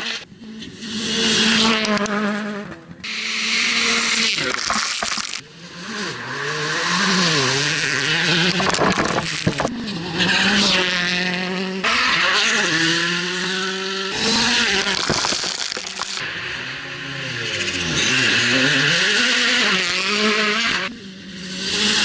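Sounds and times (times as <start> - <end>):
rally car engine revving: 0.0 - 22.0
tyres and stones hissing on gravel: 14.1 - 16.2.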